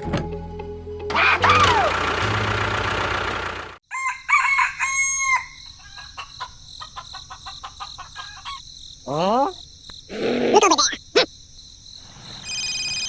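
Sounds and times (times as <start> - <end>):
rooster crowing: 3.9 - 8.6.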